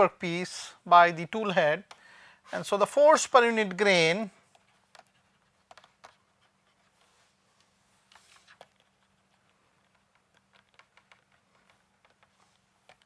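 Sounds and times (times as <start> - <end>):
pen scratches: 4.4 - 7.4, 8.0 - 13.0.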